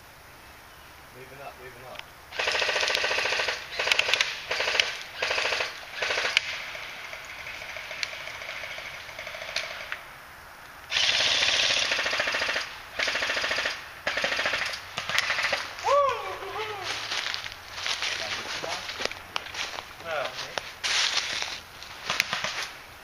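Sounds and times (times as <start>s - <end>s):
airsoft guns firing bursts: 2.3s - 9.9s, 10.9s - 15.6s.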